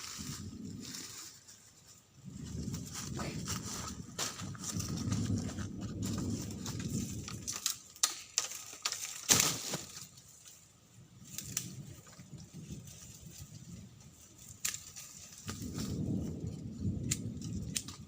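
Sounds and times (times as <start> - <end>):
soft rustle: 0.0 - 7.6
bamboo knocks and cracks: 6.0 - 10.2, 14.4 - 16.0, 17.0 - 18.0.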